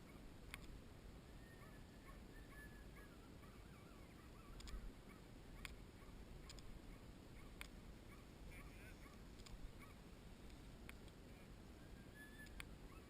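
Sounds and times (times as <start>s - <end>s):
faint short clicks: 0.4s - 0.8s, 4.5s - 4.8s, 12.4s - 12.7s
faint high chirping: 1.2s - 10.0s, 11.3s - 13.0s.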